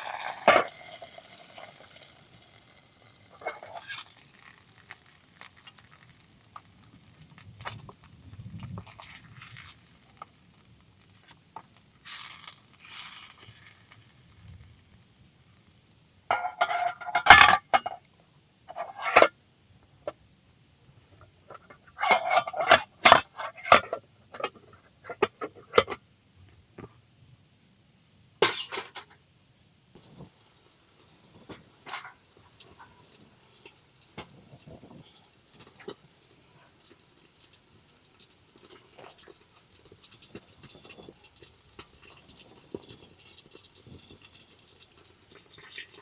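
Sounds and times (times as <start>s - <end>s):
metal cookware clinking and scraping: 0.0s - 2.4s, 3.3s - 4.1s, 16.3s - 18.0s, 18.7s - 19.3s, 21.5s - 26.0s, 28.4s - 29.2s, 31.5s - 33.2s.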